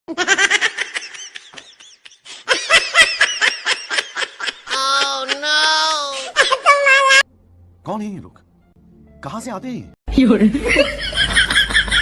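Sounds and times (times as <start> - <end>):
person laughing: 0.2 - 7.2.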